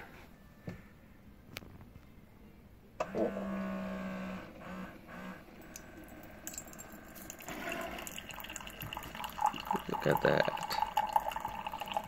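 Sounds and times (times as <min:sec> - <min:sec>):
coffee machine pump buzzing: 0:03.0 - 0:12.0.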